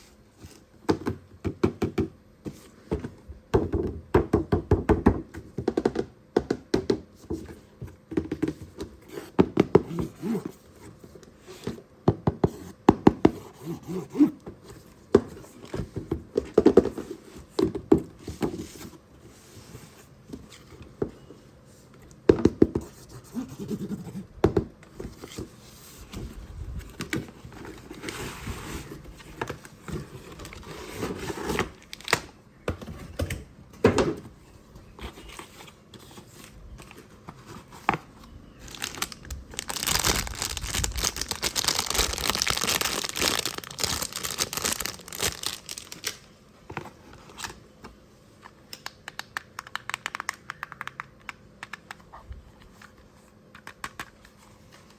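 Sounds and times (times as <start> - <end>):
packaging crinkling and tearing: 31.2 - 32.3, 38.6 - 46.3
packaging being handled: 35.1 - 47.6.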